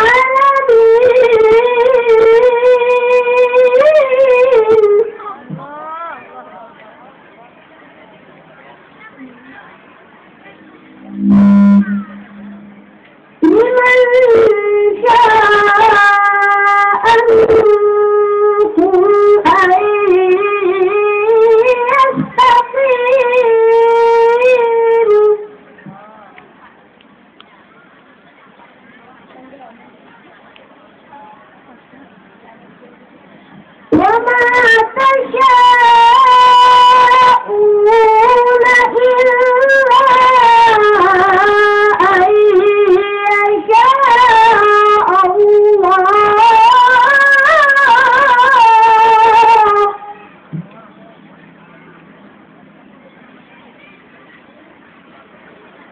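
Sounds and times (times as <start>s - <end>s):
person reciting melodically: 0.0s - 6.3s, 11.0s - 26.2s, 33.9s - 50.8s.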